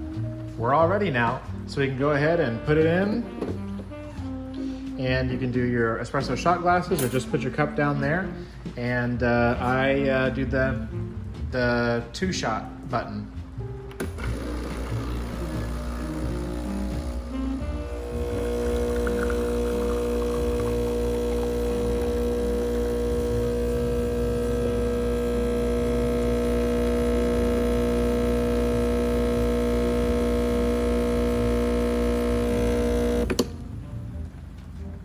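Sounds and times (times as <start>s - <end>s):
espresso machine click: 14.0s - 17.2s
espresso machine pump humming: 14.0s - 33.6s.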